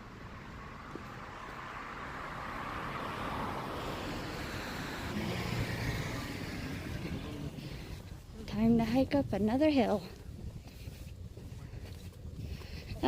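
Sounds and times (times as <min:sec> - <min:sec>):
vehicle driving past: 0:00.3 - 0:08.4.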